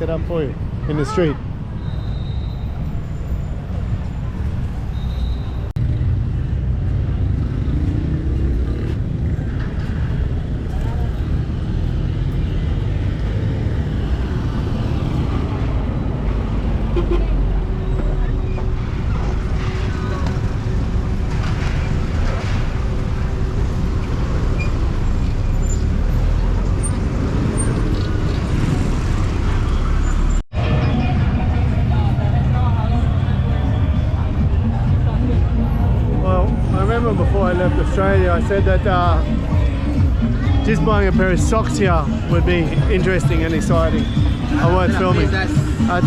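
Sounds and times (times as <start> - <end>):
rumble of passing vehicles: 0.0 - 46.0.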